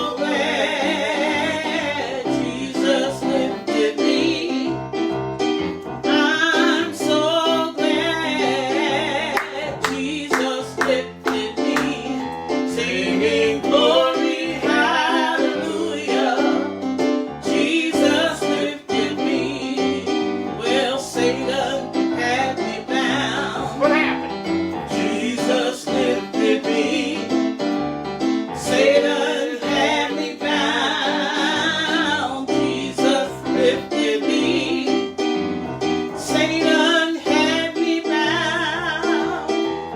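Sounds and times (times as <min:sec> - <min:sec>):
piano chords: 0:00.0 - 0:39.9
person singing with vibrato: 0:06.0 - 0:12.2, 0:12.8 - 0:16.8.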